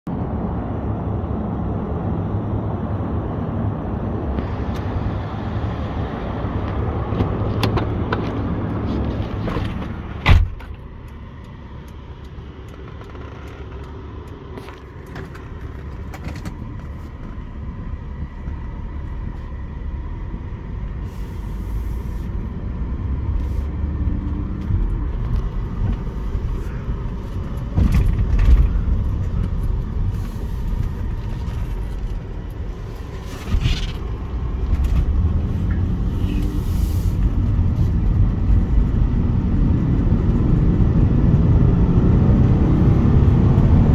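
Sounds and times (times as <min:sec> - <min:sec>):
road noise: 0:00.1 - 0:43.9
car engine accelerating hard: 0:15.5 - 0:43.9.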